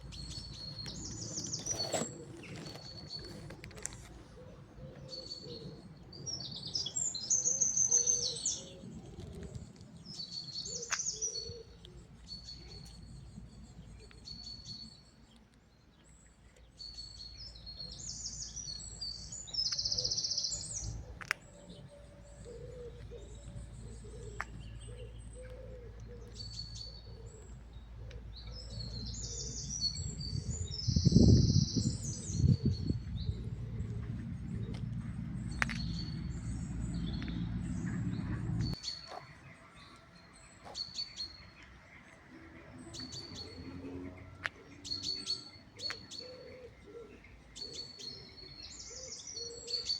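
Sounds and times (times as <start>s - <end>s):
birds chirping and calling: 0.0s - 15.4s, 16.0s - 49.9s
steady low rumble: 20.8s - 38.8s.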